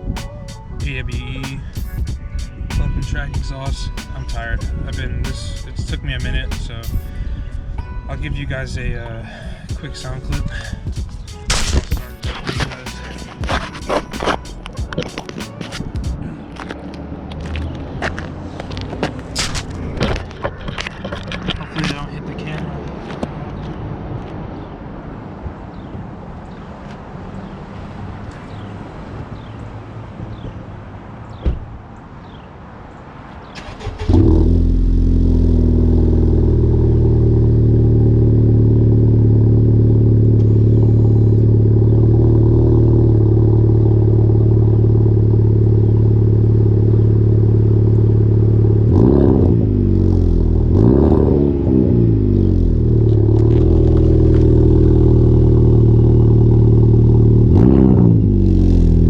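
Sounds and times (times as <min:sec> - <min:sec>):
car engine starting: 0:00.0 - 0:07.1, 0:08.5 - 0:22.1, 0:33.5 - 0:59.0
car engine idling: 0:09.2 - 0:16.7, 0:33.6 - 0:50.9, 0:51.8 - 0:59.0
car engine revving: 0:09.8 - 0:20.3, 0:33.6 - 0:59.0.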